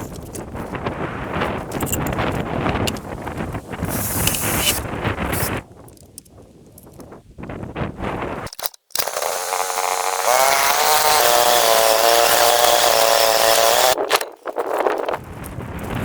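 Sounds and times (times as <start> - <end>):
chainsaw running: 3.8 - 4.8, 9.0 - 14.3.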